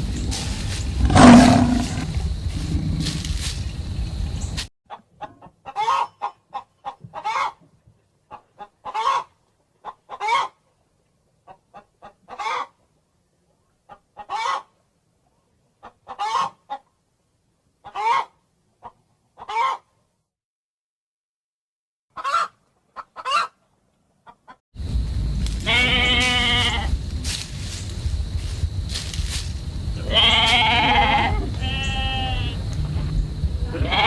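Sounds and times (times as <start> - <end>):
loud rough sound: 0.0 - 3.6
chicken clucking: 4.9 - 10.6, 11.5 - 12.8, 13.9 - 14.7, 15.8 - 16.9, 17.8 - 19.9, 22.2 - 24.6.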